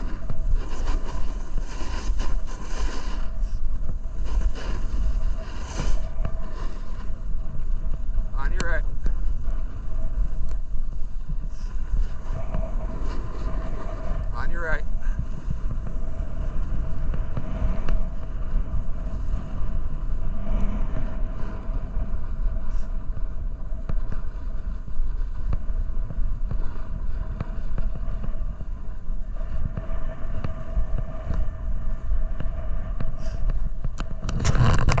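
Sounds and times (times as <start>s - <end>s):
snowboard scraping on icy snow: 0.0s - 7.8s, 11.0s - 23.0s.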